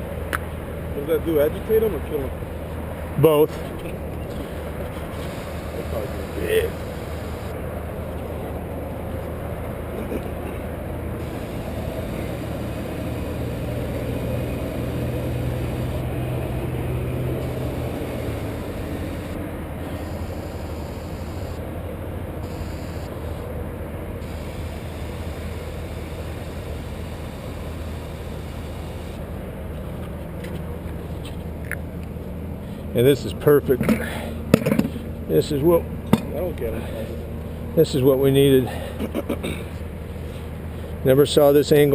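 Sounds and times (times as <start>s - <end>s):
lift engine humming: 0.0s - 33.2s.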